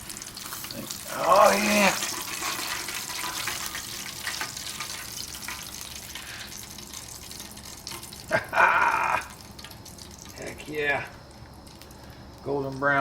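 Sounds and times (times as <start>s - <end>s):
meat frying in hot oil: 0.0s - 13.0s.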